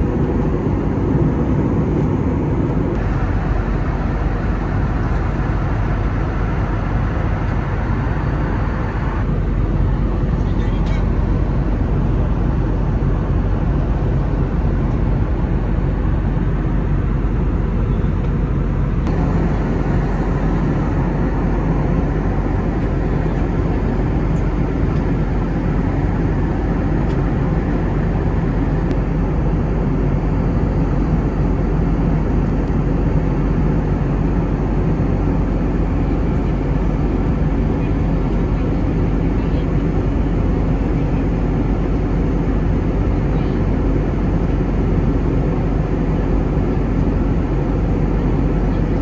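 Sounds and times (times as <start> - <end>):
airplane cabin engine rumble: 0.0 - 49.0.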